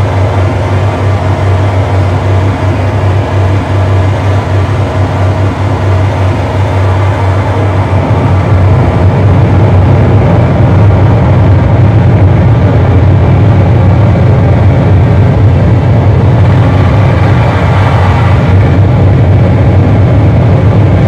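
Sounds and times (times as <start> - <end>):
harsh noise music: 15.6 - 20.0.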